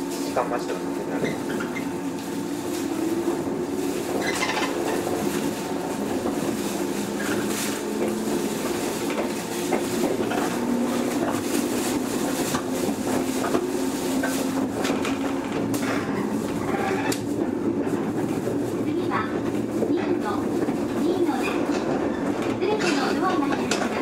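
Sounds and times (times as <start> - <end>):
train mechanical hum: 0.0 - 24.0.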